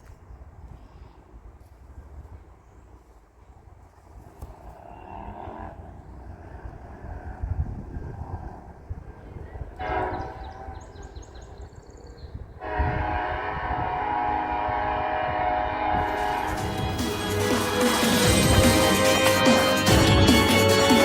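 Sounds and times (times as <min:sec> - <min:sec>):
locomotive air horn blasts: 0:09.8 - 0:10.8, 0:12.6 - 0:21.0.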